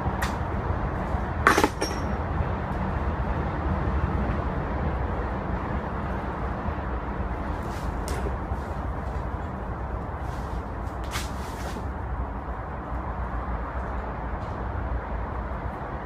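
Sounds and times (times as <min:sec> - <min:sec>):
steady background noise: 0:00.0 - 0:16.0
metal tool clinking: 0:01.5 - 0:02.2.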